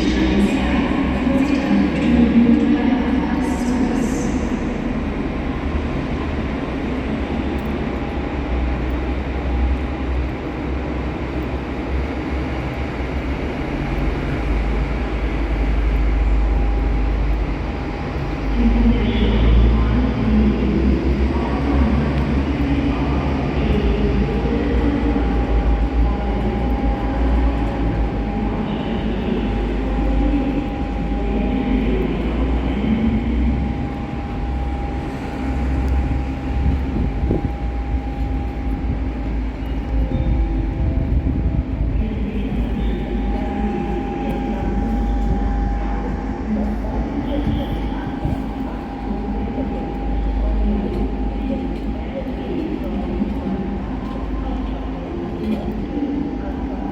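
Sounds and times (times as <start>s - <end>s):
train low rumble: 0.0s - 56.9s.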